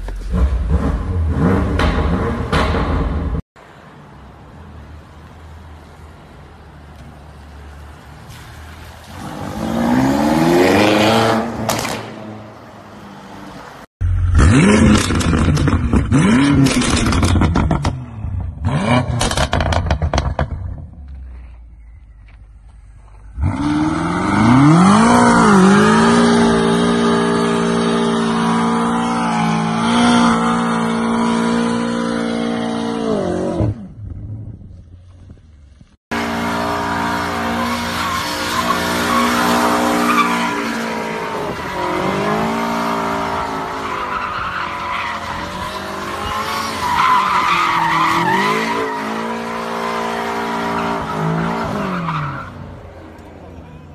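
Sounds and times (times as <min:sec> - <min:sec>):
car engine revving: 0:00.0 - 0:03.4
tyres squealing and skidding: 0:21.3 - 0:33.6, 0:36.2 - 0:53.9.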